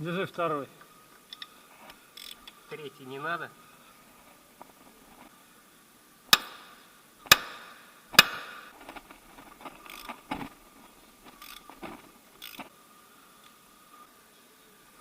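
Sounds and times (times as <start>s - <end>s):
sharp metallic knocks: 6.3s - 8.7s.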